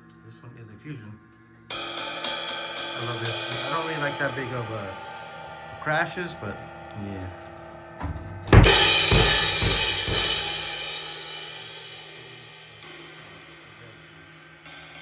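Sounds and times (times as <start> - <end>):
crash cymbal struck and ringing: 1.7 - 15.0
low drum hits: 8.0 - 11.0.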